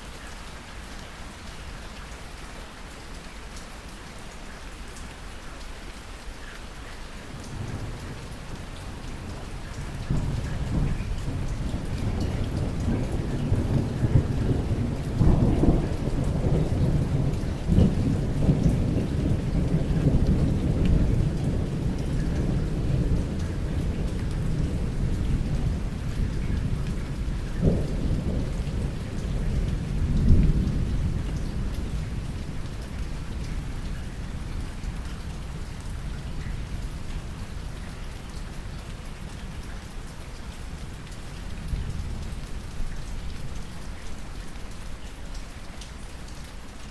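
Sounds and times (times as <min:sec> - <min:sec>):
steady rain: 0:00.0 - 0:46.9
thunder rumbling: 0:09.8 - 0:32.7.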